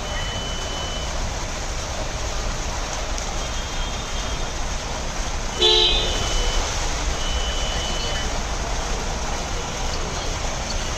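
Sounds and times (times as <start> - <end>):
street traffic rushing: 0.0 - 10.9.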